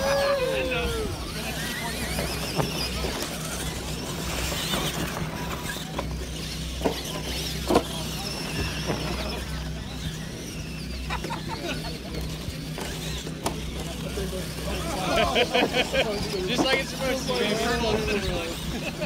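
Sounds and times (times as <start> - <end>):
electric motors whining: 0.0 - 19.0.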